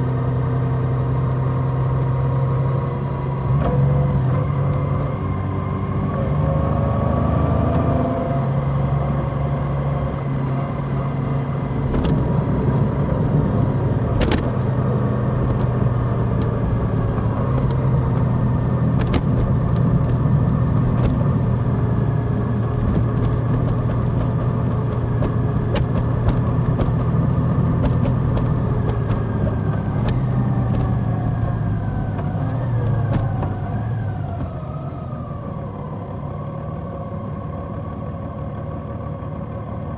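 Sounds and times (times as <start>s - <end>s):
motorcycle engine running: 8.5s - 36.3s.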